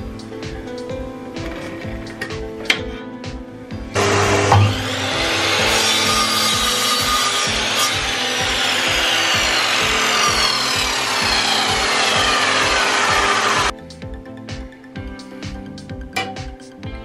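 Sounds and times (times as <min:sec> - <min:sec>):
background music with beat: 0:00.0 - 0:17.0
power tool cutting wood: 0:04.0 - 0:13.7.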